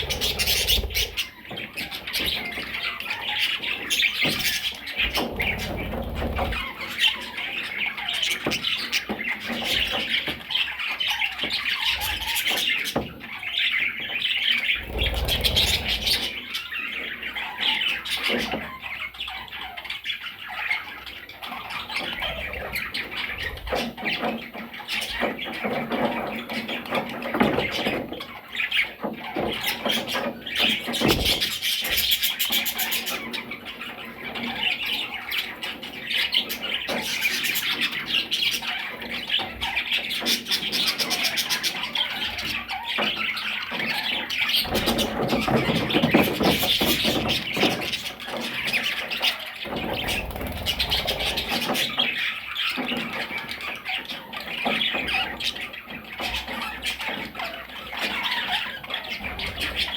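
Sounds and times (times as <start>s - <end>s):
parrots squawking and chirping: 0.0s - 59.9s.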